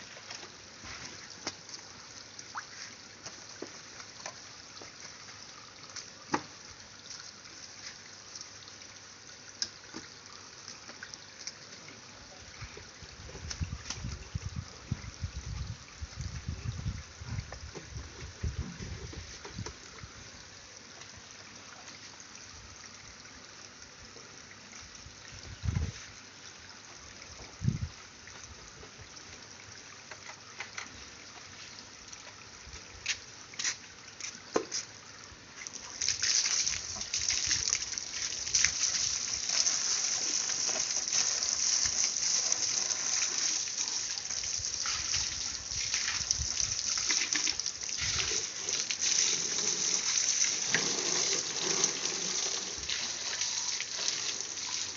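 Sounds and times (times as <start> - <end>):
water dripping: 0.0 - 12.0, 35.6 - 54.9
water jet spraying: 36.0 - 54.9.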